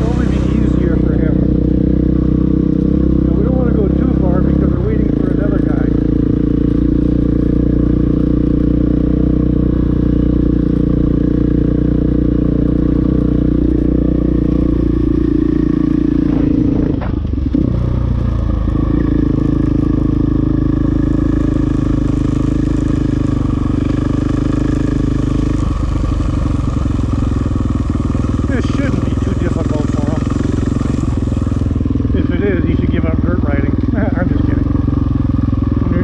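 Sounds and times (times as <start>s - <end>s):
dirt bike engine running: 0.0s - 36.0s.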